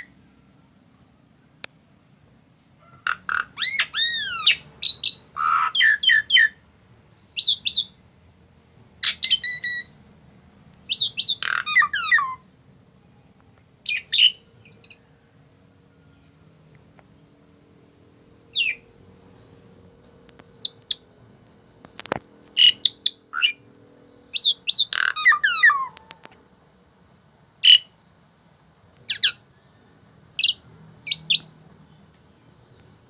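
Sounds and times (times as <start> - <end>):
starling singing: 2.6 - 6.6, 7.2 - 8.0, 9.0 - 10.0, 10.7 - 12.7, 13.8 - 15.3, 18.4 - 19.1, 19.7 - 26.4, 27.6 - 28.0, 29.0 - 33.0.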